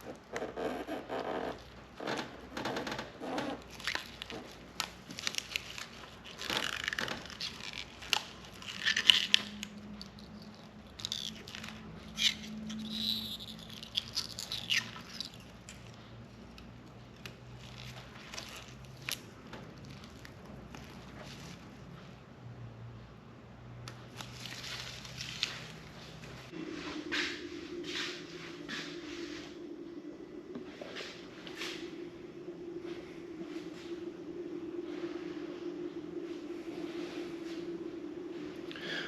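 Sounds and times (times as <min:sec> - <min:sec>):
plastic film peeling and tearing: 0:03.6 - 0:10.3.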